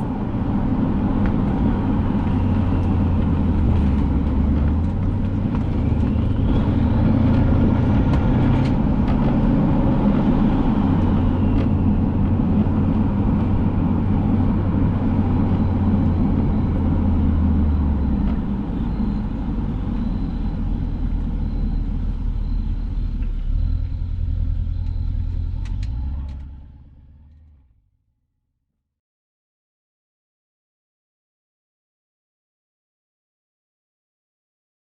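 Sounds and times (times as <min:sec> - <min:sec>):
car exhaust drone while driving: 0:00.0 - 0:27.7.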